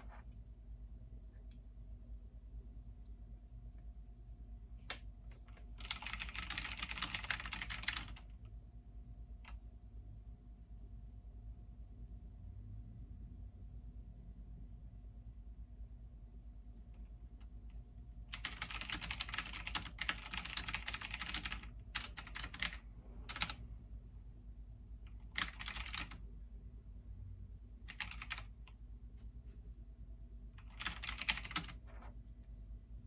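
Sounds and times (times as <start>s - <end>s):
steady low hum: 0.0s - 33.0s
keyboard typing: 5.5s - 8.4s, 18.3s - 23.6s, 25.1s - 26.2s, 27.9s - 28.8s, 30.6s - 32.1s.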